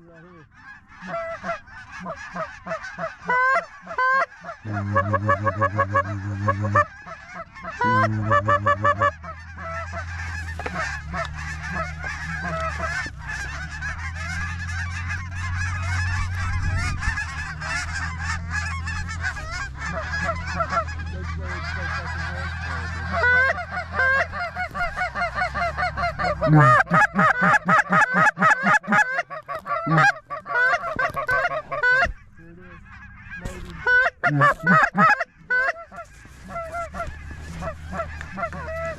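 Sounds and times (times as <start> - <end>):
geese honking: 0.0 - 38.9
low hum: 4.6 - 28.0.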